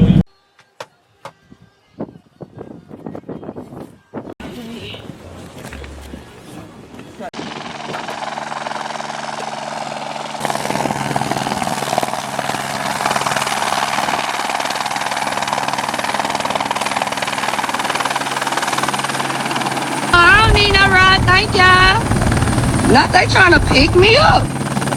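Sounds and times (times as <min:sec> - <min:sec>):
helicopter engine and rotors: 0:06.9 - 0:24.9.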